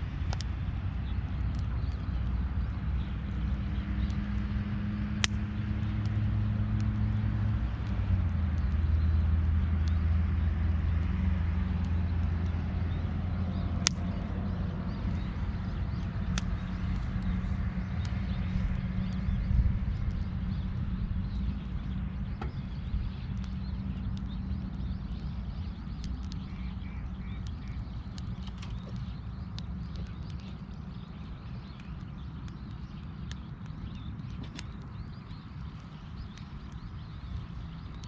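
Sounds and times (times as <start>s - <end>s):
low engine hum: 0.0s - 38.0s
sharp clicks: 22.2s - 38.0s.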